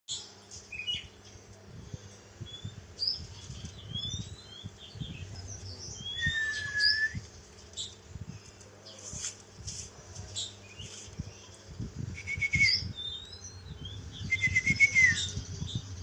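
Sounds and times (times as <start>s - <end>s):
songbird chirping and whistling: 2.4s - 8.0s, 11.9s - 16.0s.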